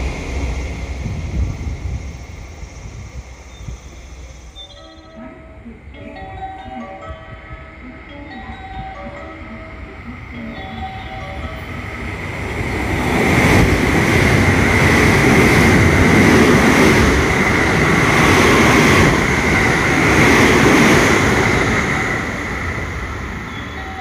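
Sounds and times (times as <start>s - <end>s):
train wheels rumbling on rail: 0.0s - 24.0s
high-pitched ring: 3.8s - 12.2s.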